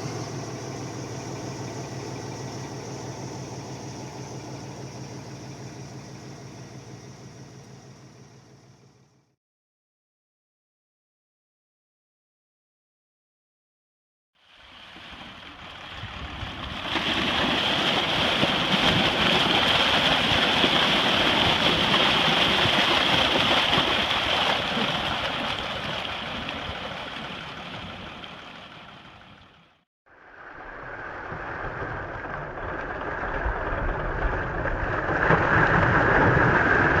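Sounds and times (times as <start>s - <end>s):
heavy truck rushing: 0.0s - 9.0s.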